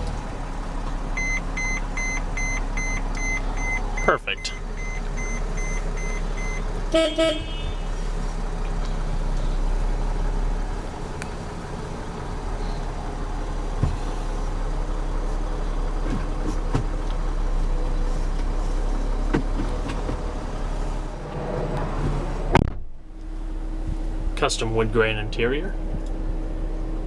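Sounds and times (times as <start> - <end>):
van engine idling: 0.0 - 21.4, 22.1 - 27.0
short double horn toot: 6.9 - 8.0.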